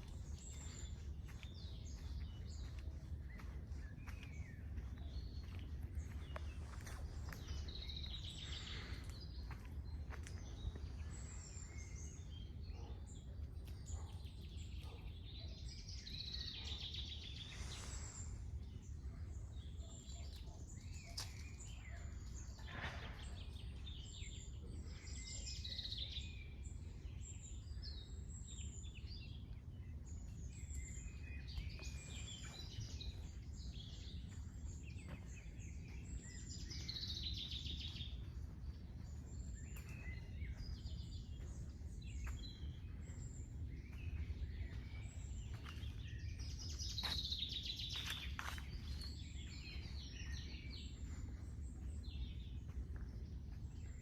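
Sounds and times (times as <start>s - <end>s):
birds singing and chirping: 0.0s - 54.0s.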